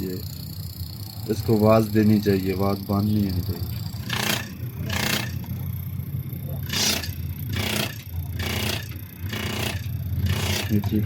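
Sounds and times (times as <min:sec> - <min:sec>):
fuel injector spraying hissing bursts: 0:00.0 - 0:05.4.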